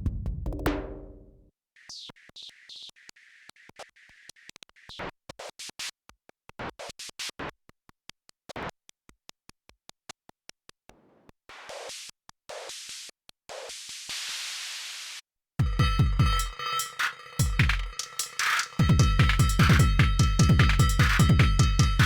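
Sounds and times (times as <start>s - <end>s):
electronic drum rhythm: 0.0s - 1.3s, 15.6s - 22.0s.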